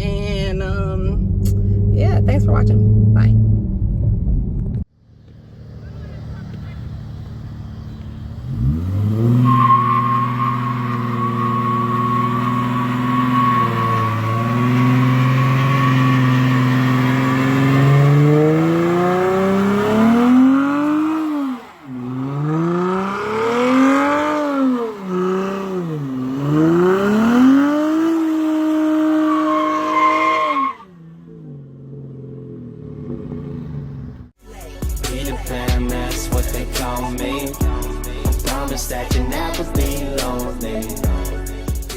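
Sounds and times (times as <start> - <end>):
car engine revving: 0.0 - 34.4
tires squealing: 5.7 - 31.5, 36.5 - 37.7.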